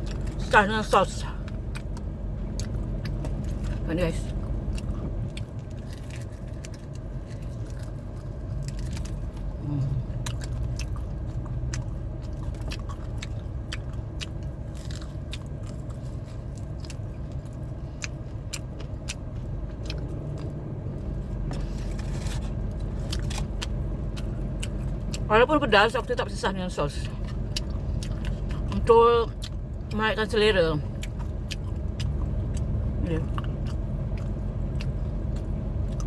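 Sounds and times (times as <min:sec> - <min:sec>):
steady low hum: 0:00.0 - 0:36.0
person crunching fried chicken: 0:01.4 - 0:20.6, 0:21.5 - 0:25.2.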